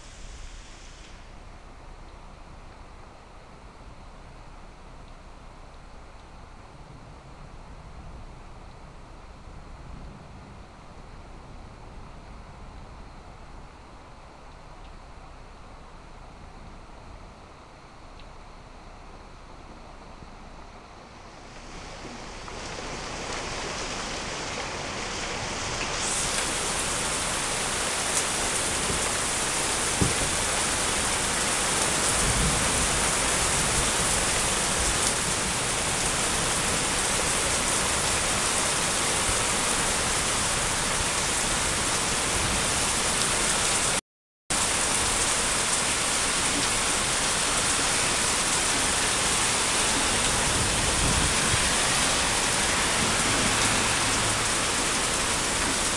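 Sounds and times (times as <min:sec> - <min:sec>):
heavy rain falling: 0:21.1 - 0:55.9.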